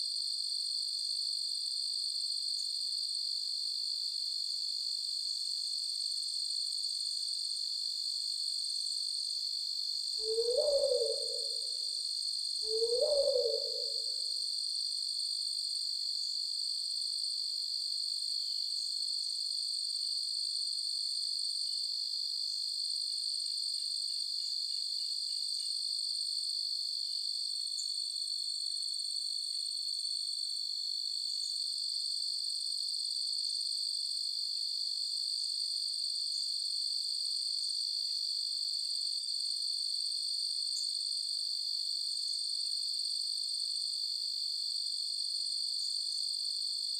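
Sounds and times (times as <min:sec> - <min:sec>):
crickets chirping: 0:01.1 - 0:20.2, 0:21.4 - 0:46.9
low owl-like hoot: 0:10.2 - 0:11.9, 0:12.6 - 0:14.3.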